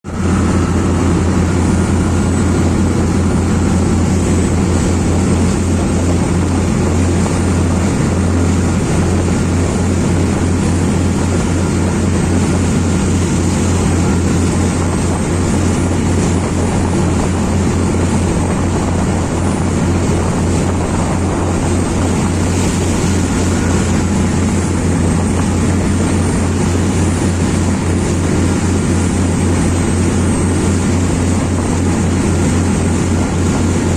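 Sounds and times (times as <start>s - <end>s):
boat engine throbbing: 0.0s - 33.9s
steady rushing noise: 0.0s - 33.9s.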